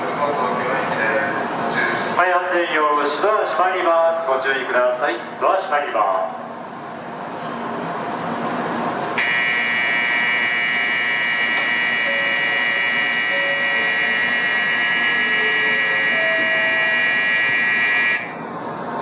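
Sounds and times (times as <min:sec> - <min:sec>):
electronic signal bell ringing: 0:09.2 - 0:18.4.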